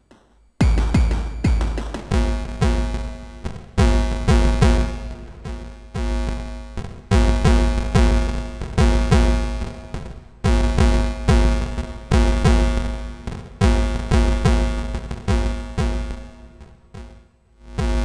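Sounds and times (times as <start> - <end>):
electronic drum booms: 0.6 - 6.5.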